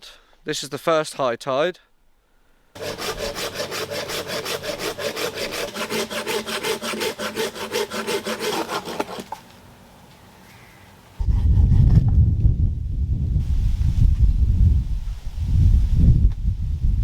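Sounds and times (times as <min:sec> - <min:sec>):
hand saw cutting branch: 0:02.8 - 0:09.5.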